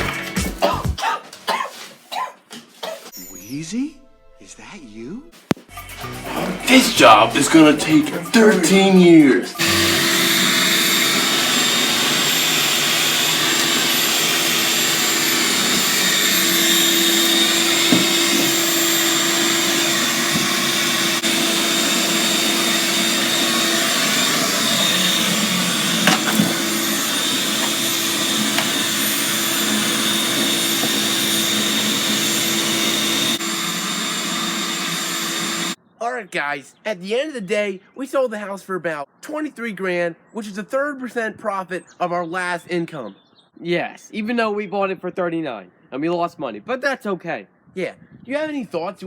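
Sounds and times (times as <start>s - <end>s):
small motor humming: 9.6s - 35.8s.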